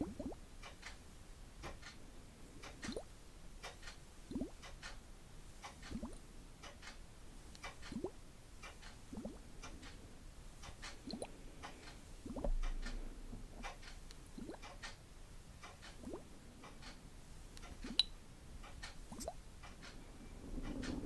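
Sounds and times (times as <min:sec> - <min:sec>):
water dripping: 0:00.0 - 0:00.4, 0:02.6 - 0:04.7, 0:05.6 - 0:06.3, 0:07.6 - 0:08.2, 0:08.8 - 0:09.5, 0:10.7 - 0:11.4, 0:12.2 - 0:15.0, 0:15.7 - 0:16.3, 0:19.0 - 0:19.4.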